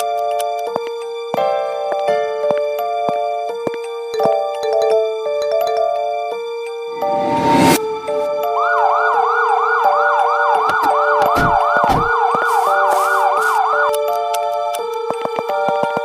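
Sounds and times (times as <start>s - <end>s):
synth background music: 0.0s - 16.0s
yelping siren: 8.1s - 14.0s.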